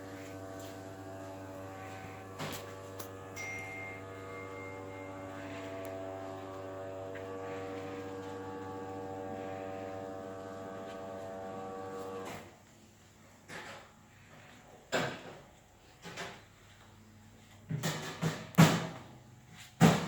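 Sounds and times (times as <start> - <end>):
electric motor humming: 0.0 - 12.3.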